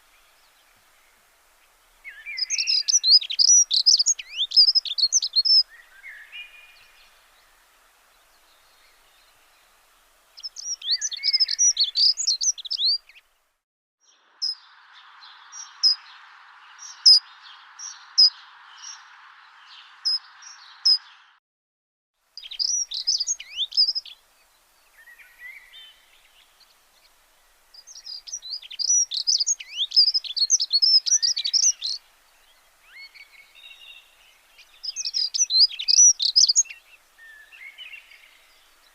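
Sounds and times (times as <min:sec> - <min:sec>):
steady hiss: 0:00.0 - 0:13.6, 0:22.2 - 0:38.9
songbirds chirping: 0:00.0 - 0:21.4, 0:22.2 - 0:38.9.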